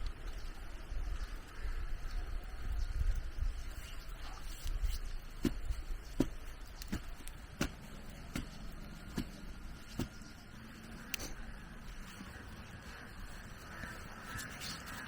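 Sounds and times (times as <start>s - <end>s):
wind rumble on microphone: 0.0s - 15.0s
blade chopping: 5.4s - 10.3s.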